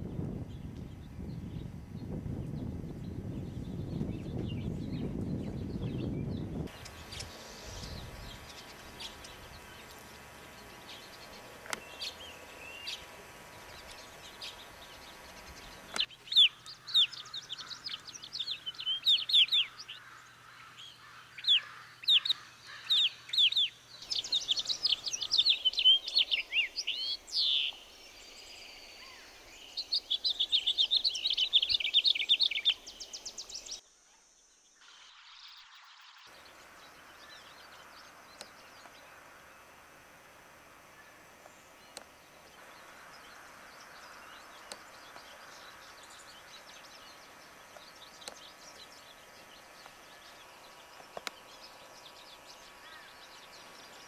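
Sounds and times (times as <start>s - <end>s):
birds chirping: 0.4s - 33.8s, 35.5s - 54.0s
bird trill: 14.0s - 33.8s.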